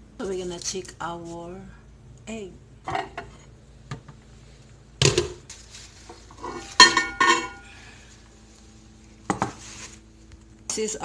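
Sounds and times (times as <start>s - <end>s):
dish and cover clinking: 6.4s - 7.6s.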